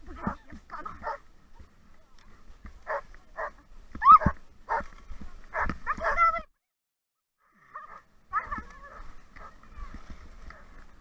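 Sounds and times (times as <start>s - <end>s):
dogs barking: 0.7s - 1.2s, 2.9s - 4.8s, 5.5s - 6.3s, 7.7s - 9.6s.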